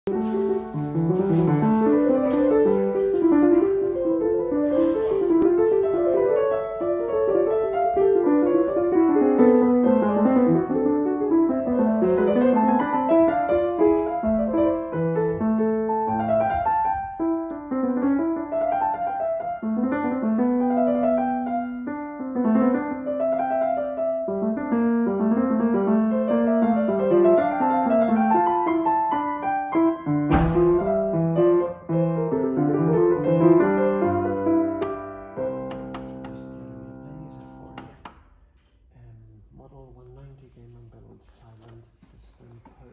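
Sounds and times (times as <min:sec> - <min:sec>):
piano playing quick runs: 0:00.1 - 0:38.0.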